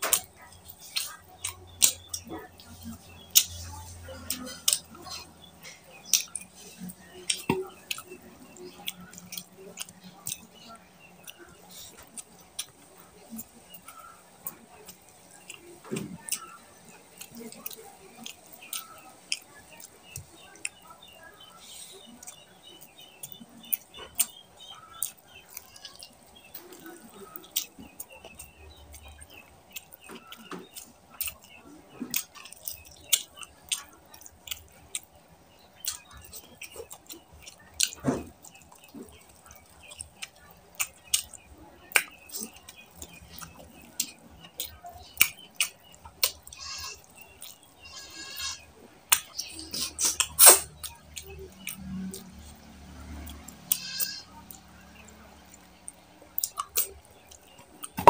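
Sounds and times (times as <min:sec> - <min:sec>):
mouth clicks and squelches: 0:00.0 - 0:58.0
person chewing and lip smacking: 0:00.0 - 0:58.0
squeaky mouth sounds: 0:48.2 - 0:51.3.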